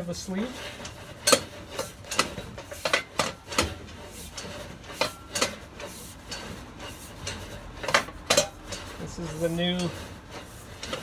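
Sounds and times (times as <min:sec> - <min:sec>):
cable reel clicking and clanking: 0:00.0 - 0:11.0.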